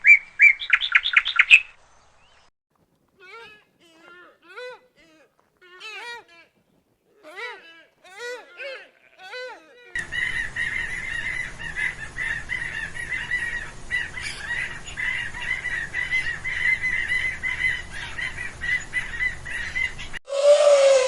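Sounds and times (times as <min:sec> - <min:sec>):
flock of birds calling: 0:03.2 - 0:21.0
low falling bird call: 0:09.4 - 0:21.0.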